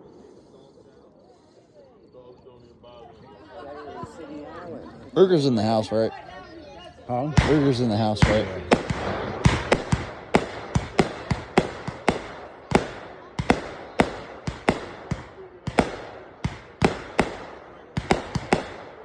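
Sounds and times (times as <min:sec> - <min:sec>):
fireworks bangs: 0:07.2 - 0:19.0.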